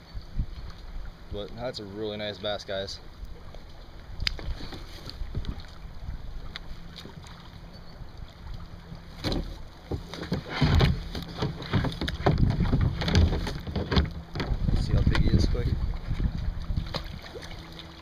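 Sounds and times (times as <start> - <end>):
wind rumble on microphone: 0.0 - 1.6, 4.0 - 17.7
knocks and bumps on a kayak: 4.4 - 5.7, 9.0 - 17.3.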